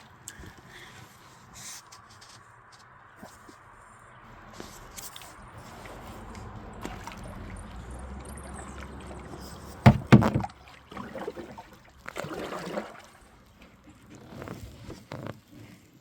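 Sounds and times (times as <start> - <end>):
water trickling and splashing: 1.0 - 15.6
loud sharp knocks: 9.8 - 10.5.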